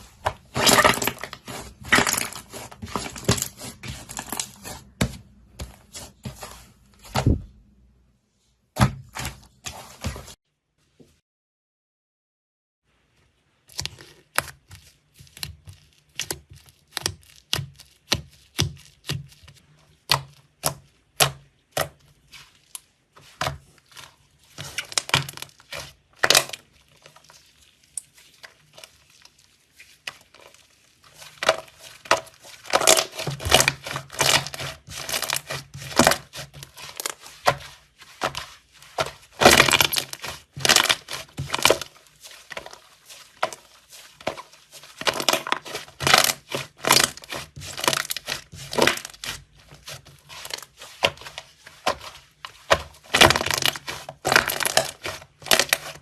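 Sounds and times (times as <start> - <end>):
slime popping and crackling: 24.6 - 52.0, 52.6 - 56.0.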